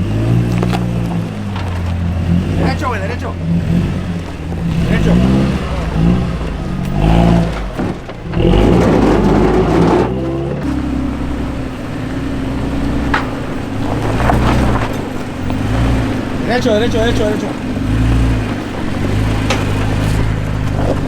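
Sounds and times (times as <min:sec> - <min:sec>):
truck engine revving: 0:00.0 - 0:21.0
sharp knocks: 0:04.2 - 0:10.8.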